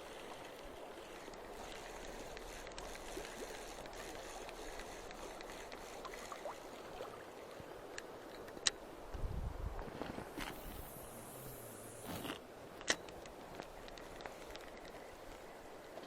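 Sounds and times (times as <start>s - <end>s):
small clicks: 10.4s - 16.0s.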